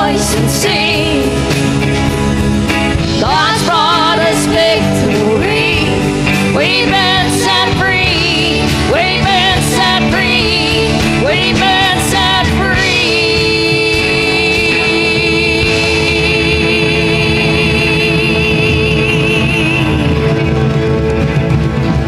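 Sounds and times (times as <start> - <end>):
worship band playing: 0.0 - 22.0
voices singing long notes: 3.0 - 20.7.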